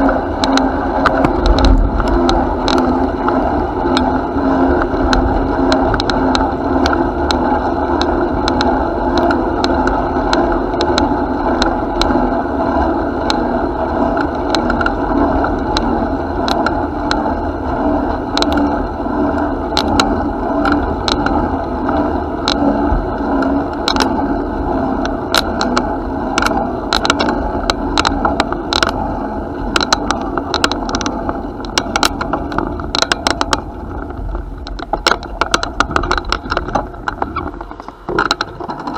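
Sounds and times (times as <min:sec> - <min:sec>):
bicycle tyres rolling rumble: 0:00.0 - 0:38.9
bike rattles and clicks: 0:00.0 - 0:38.9.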